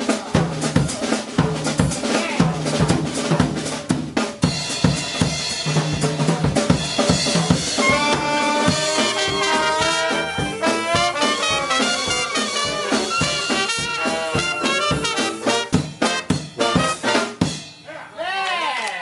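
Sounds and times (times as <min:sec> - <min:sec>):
jazz drum kit: 0:00.0 - 0:17.9
brass instruments: 0:04.8 - 0:17.7.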